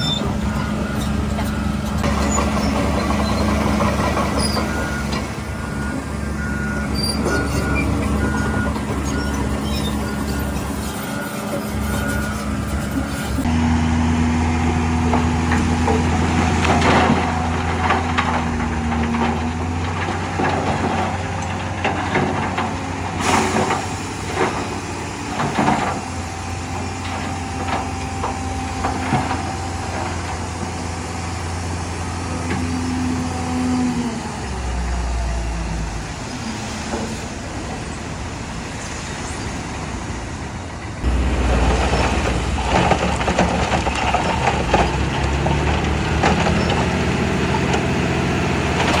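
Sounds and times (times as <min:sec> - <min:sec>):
diesel machinery running: 0:00.0 - 0:49.0
metal clanks and knocks: 0:15.1 - 0:22.9.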